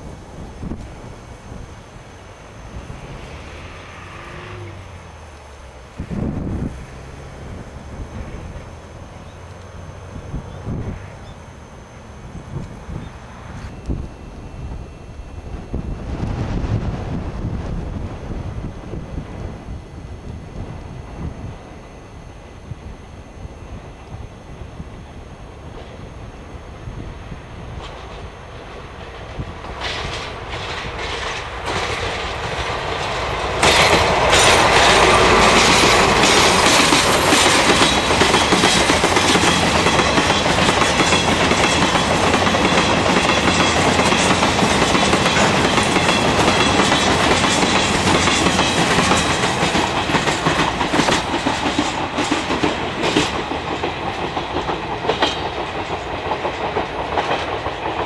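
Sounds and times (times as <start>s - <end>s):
freight train passing: 0.0s - 58.0s
train wheels clacking on rail joints: 27.7s - 58.0s.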